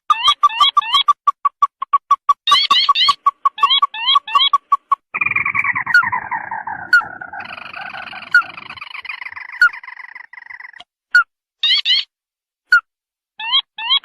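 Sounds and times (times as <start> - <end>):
steady bird trill: 0.0 - 12.1
crake trill sliding downward: 1.8 - 10.8.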